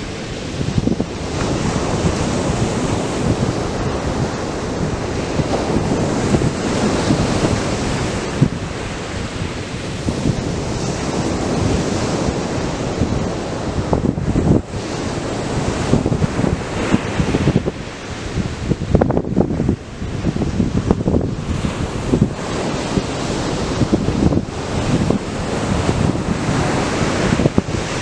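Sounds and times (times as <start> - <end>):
surf breaking on beach: 0.0 - 28.0
wind buffeting microphone: 0.0 - 28.0.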